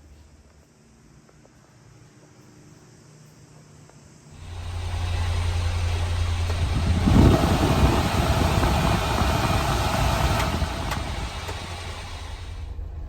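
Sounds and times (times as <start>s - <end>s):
small truck engine running: 4.4s - 13.0s.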